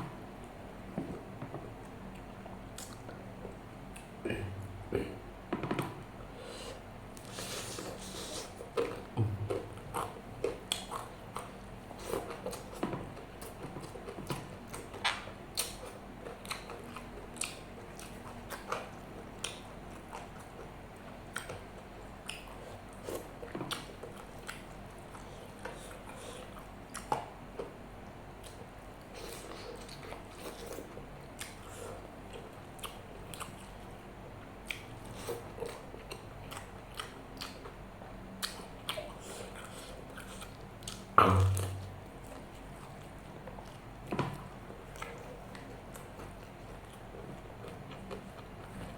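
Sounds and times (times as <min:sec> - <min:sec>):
person chewing with mouth clicks: 0:07.1 - 0:20.6, 0:21.3 - 0:27.7, 0:28.4 - 0:33.8, 0:34.6 - 0:37.8, 0:38.4 - 0:43.9.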